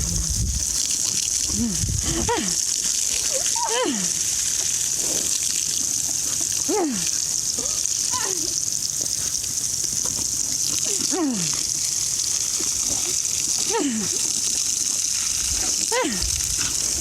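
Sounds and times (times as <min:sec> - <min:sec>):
garden hose spraying water: 0:00.0 - 0:17.0.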